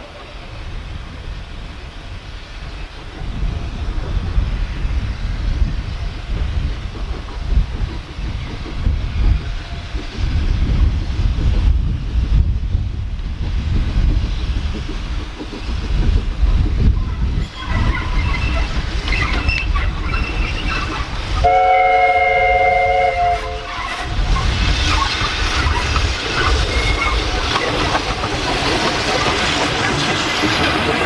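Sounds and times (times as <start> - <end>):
wind on microphone: 0.0 - 31.0
train wheel clatter: 2.3 - 31.0
locomotive whistle chord: 21.4 - 23.6.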